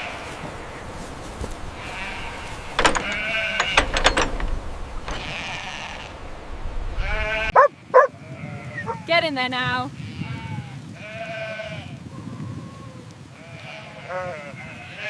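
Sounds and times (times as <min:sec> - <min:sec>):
sharp knocks: 0:01.9 - 0:06.1
goats bleating: 0:10.0 - 0:15.0.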